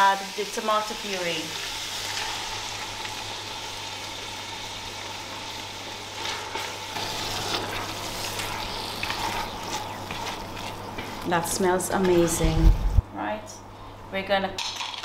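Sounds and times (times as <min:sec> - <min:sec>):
meat and tomatoes sizzling in a pot: 0:00.0 - 0:13.0
spoon stirring and scraping: 0:06.2 - 0:12.4.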